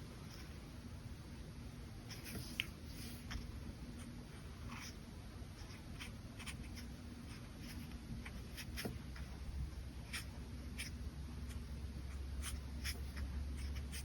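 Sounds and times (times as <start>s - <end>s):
brush pen scratching on paper: 5.6s - 14.0s.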